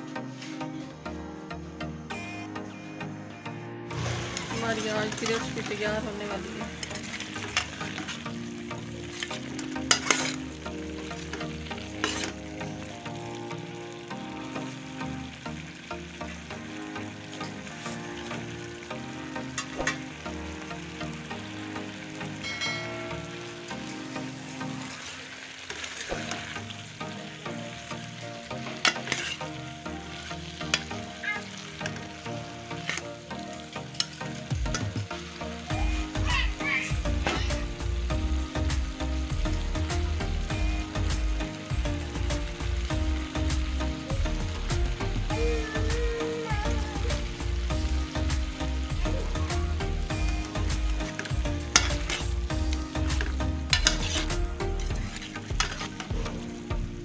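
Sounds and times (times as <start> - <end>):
vegetables sizzling in a pan: 0.0 - 57.0
steel ladle scraping a pan: 6.6 - 12.6, 28.6 - 29.6, 32.8 - 33.1, 51.0 - 52.4, 53.0 - 56.6.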